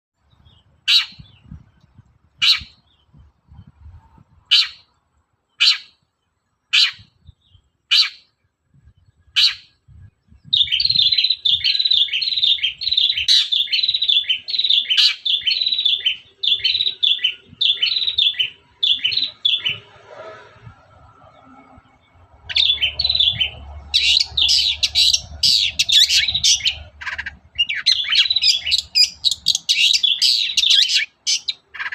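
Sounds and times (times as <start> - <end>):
bird sharp high calls: 0.8 - 1.6, 2.4 - 3.0, 4.5 - 4.9, 5.5 - 6.0, 6.7 - 8.3, 9.3 - 9.8, 10.5 - 19.9, 22.5 - 31.9.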